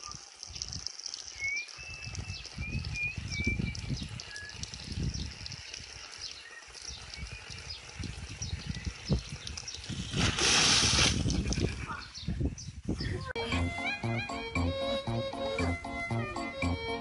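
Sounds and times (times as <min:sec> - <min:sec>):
birds chirping: 0:11.4 - 0:17.0.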